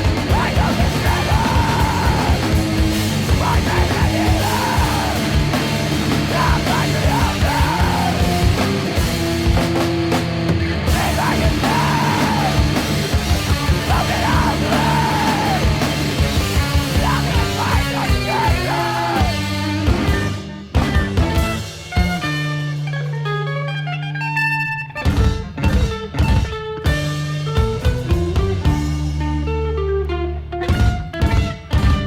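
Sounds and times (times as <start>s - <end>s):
person yelling and screaming vocals: 0.0s - 2.6s, 3.2s - 5.5s, 6.2s - 8.6s, 10.9s - 19.5s
pounding drums: 0.0s - 22.2s
distorted guitars: 0.0s - 32.0s
punk rock song: 0.0s - 32.0s.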